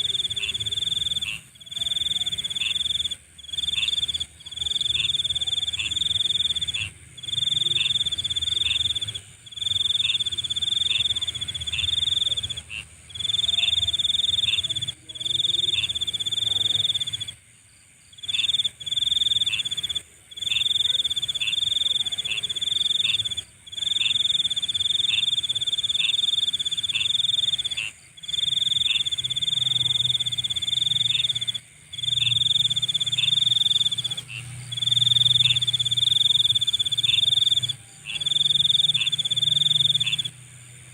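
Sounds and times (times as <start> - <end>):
cricket-like trill: 0.0 - 40.9
low insect chorus: 0.0 - 40.9
high-pitched insect buzz: 18.2 - 40.4.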